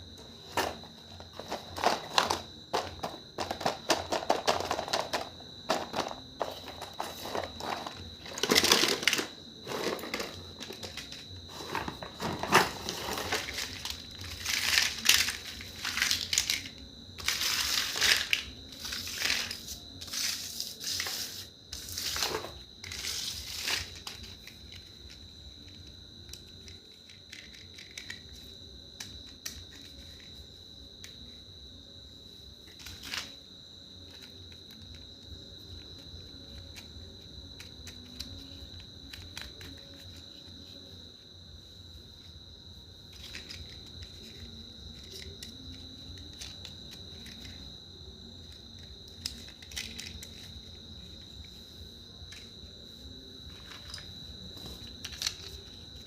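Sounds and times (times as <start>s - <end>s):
crinkling and clattering: 0.2s - 30.4s, 32.7s - 33.4s, 43.1s - 47.7s, 48.4s - 51.6s, 53.4s - 56.0s.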